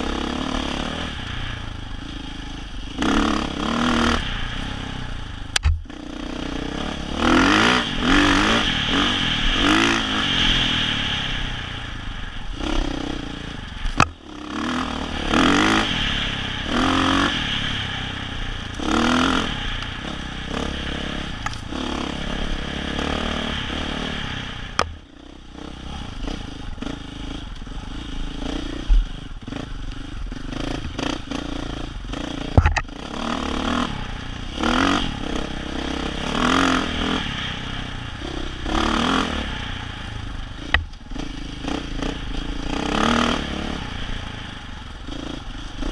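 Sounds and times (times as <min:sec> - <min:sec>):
dirt bike engine revving: 0:00.0 - 0:45.9
clatter and sharp knocks: 0:32.5 - 0:32.9.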